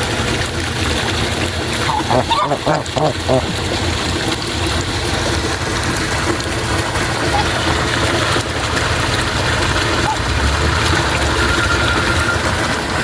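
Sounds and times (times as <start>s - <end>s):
flowing water rushing: 0.0s - 13.0s.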